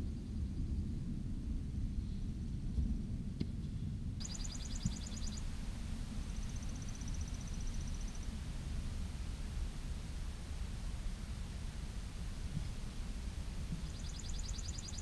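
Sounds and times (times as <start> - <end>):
songbirds trilling: 4.2 - 8.5, 12.0 - 15.0.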